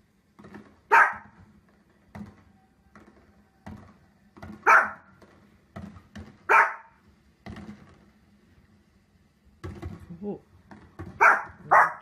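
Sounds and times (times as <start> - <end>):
faint knocks and pops: 0.3 - 6.6, 7.4 - 8.3, 9.6 - 11.7
dog barking: 0.9 - 1.4, 4.6 - 5.1, 6.5 - 7.0, 11.2 - 12.0.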